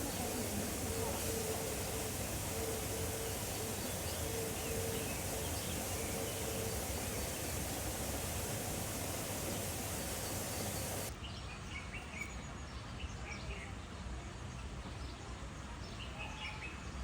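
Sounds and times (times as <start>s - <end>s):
faint bird chirps: 0.0s - 11.1s
outdoor background hiss: 0.0s - 11.2s.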